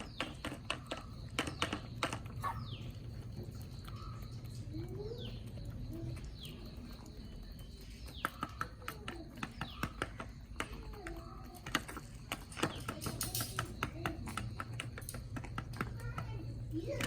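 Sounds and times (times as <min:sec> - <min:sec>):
chicks chirping: 0:00.0 - 0:10.1
chickens clucking: 0:00.0 - 0:17.0
pecking clicks and taps: 0:00.0 - 0:17.0.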